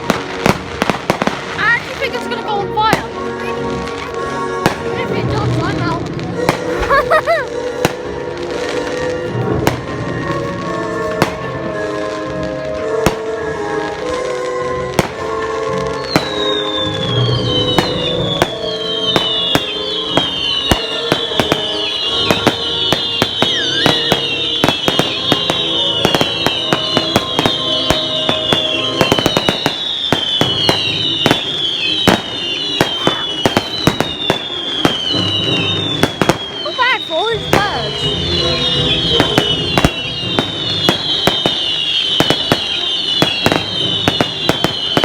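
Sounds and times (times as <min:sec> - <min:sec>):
background music: 0:00.0 - 0:45.0
fireworks bangs and crackles: 0:00.0 - 0:45.0
fireworks whistles falling: 0:14.0 - 0:45.0.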